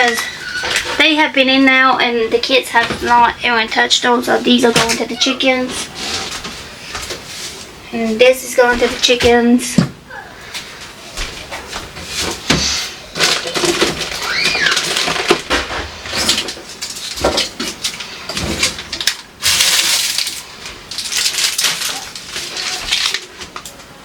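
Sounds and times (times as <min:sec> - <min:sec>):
short squeak: 0:00.0 - 0:00.9
food containers clattering: 0:11.3 - 0:23.9.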